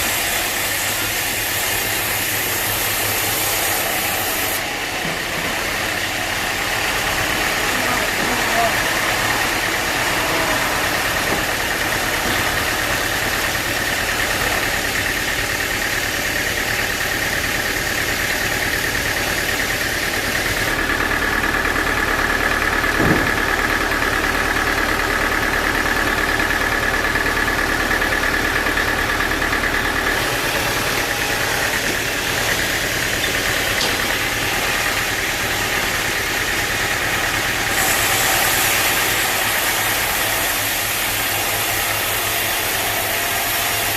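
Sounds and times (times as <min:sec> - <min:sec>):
sawmill machinery hum: 0:00.0 - 0:43.9
short knock: 0:23.0 - 0:23.4.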